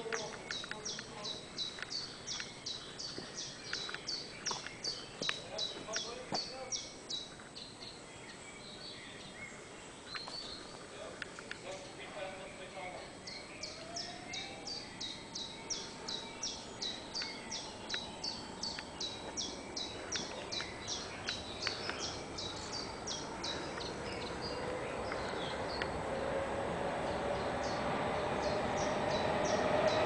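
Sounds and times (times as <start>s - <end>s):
small bird chirping: 0.0s - 26.0s
steady hum: 6.5s - 30.0s.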